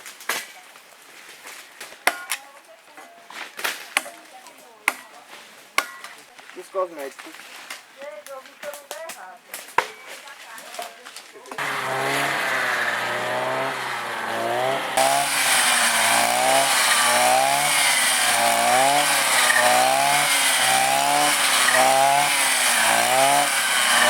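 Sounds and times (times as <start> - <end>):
small engine revving: 11.6 - 24.0.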